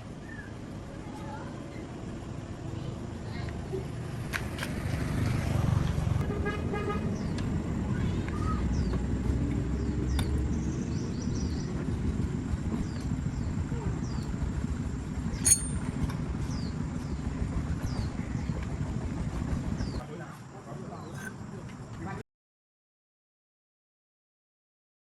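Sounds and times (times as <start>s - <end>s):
steady low rumble: 5.6s - 20.0s
sharp metallic clink: 15.4s - 16.0s.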